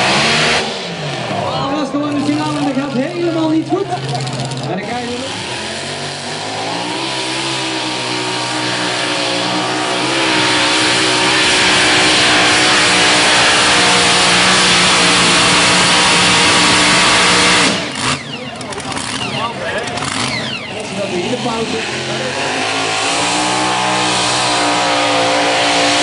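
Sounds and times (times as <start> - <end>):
tractor engine under full power: 0.0 - 26.0.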